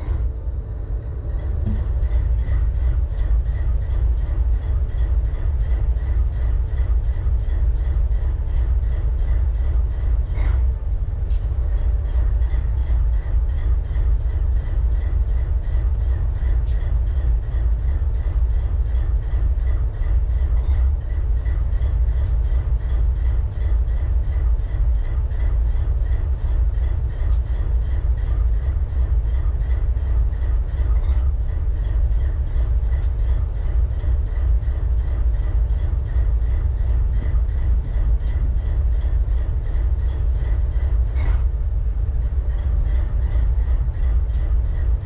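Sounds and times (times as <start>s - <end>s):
locomotive engine idling: 0.0s - 45.0s.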